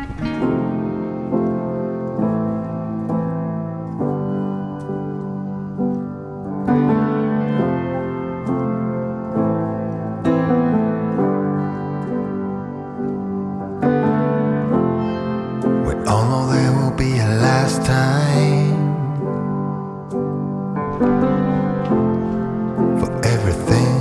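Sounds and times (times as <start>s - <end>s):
electric piano chords: 0.0s - 24.0s.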